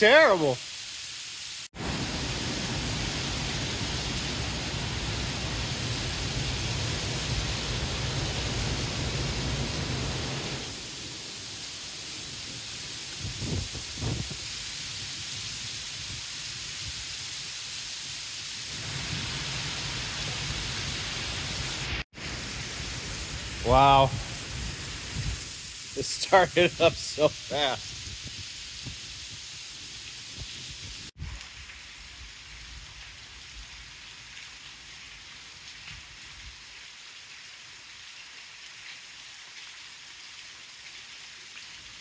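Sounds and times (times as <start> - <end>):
heavy rain hissing: 0.0 - 31.2
wind rumbling on microphone: 12.4 - 17.2, 23.2 - 25.7, 26.8 - 33.0.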